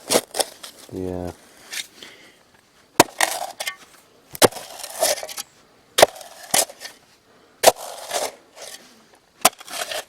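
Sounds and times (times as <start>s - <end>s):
gritty scrape of gravel and soil: 0.0s - 2.2s, 3.0s - 10.0s
shovel striking stone: 3.0s - 3.8s, 4.4s - 7.0s, 7.6s - 8.8s, 9.4s - 10.0s.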